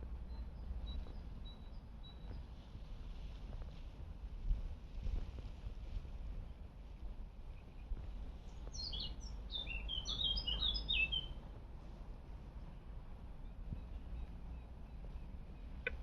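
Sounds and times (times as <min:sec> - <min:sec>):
songbird chirping: 0:08.5 - 0:11.4.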